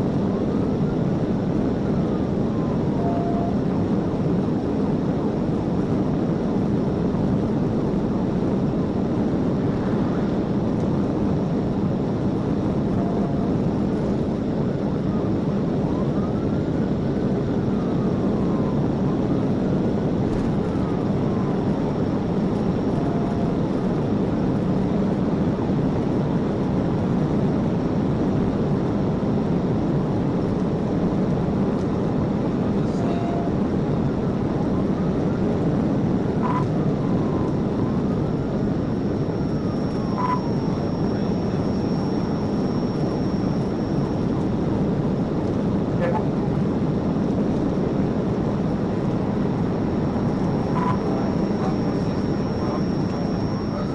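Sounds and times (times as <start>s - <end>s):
car road and engine noise: 0.0s - 53.9s
faint siren wailing: 0.8s - 3.8s, 12.8s - 23.9s, 32.8s - 44.7s, 49.2s - 53.9s
short electronic beep: 36.4s - 36.7s, 39.4s - 44.2s, 50.5s - 53.9s.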